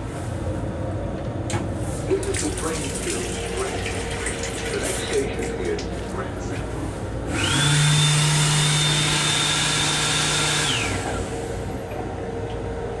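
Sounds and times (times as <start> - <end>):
electric hand dryer running: 7.3 - 11.8.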